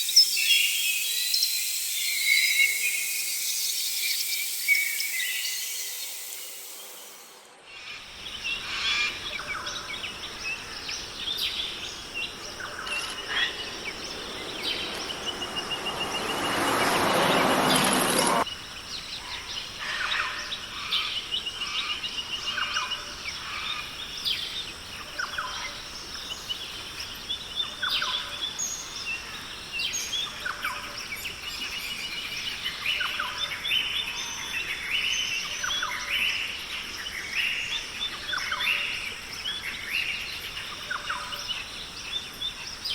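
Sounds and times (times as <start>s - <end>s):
high insect hum: 0.0s - 42.9s
birds calling: 7.9s - 18.4s
loud rushing noise: 11.0s - 18.4s.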